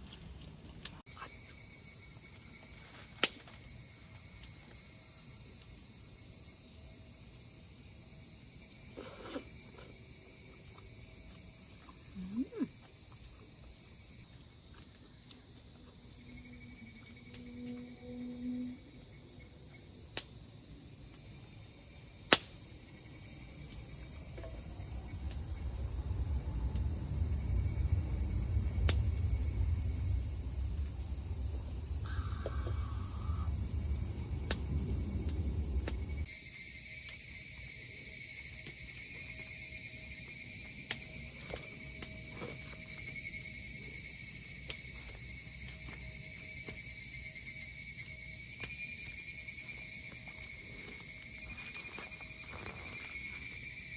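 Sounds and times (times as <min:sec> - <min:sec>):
insects chorus: 0:00.0 - 0:53.9
low rumble: 0:24.6 - 0:36.3.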